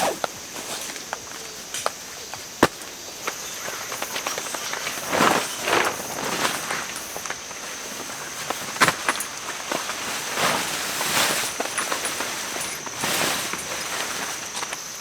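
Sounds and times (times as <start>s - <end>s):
footsteps on gravel: 0.0s - 6.1s.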